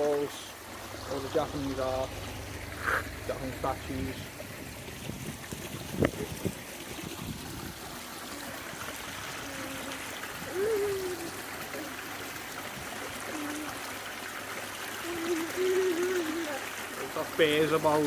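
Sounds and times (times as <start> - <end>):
stream water trickling: 0.0 - 18.0
short wavering voice sounds: 2.7 - 3.1, 9.3 - 12.1, 13.1 - 13.9, 15.0 - 17.2.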